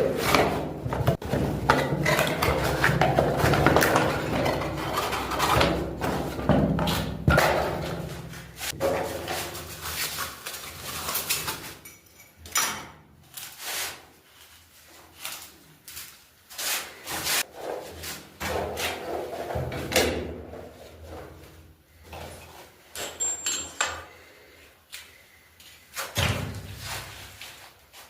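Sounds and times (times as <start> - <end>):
scraping and rubbing: 0.0 - 11.8.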